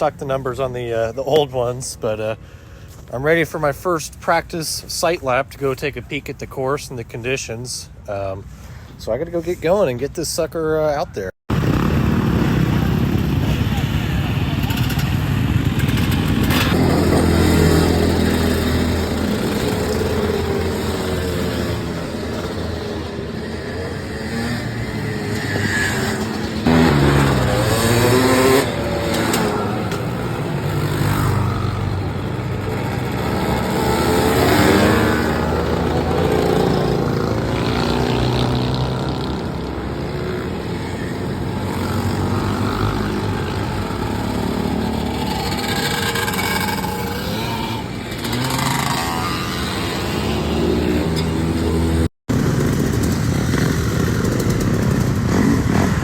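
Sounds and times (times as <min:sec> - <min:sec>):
dirt bike engine revving: 0:11.5 - 0:56.0.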